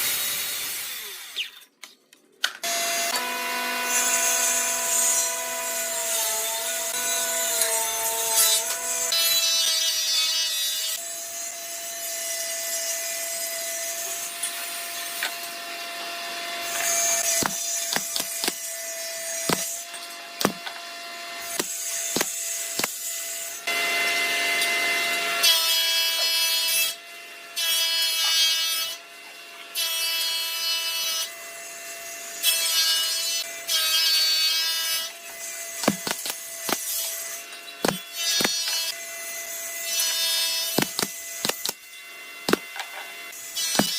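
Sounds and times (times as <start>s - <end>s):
wood being sawn: 16.0s - 19.8s, 20.4s - 23.6s, 33.8s - 39.0s, 39.9s - 41.8s, 42.4s - 43.9s.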